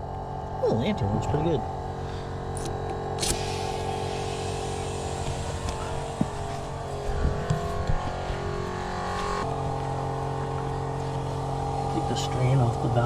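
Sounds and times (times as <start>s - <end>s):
electric air compressor running: 0.0s - 13.0s.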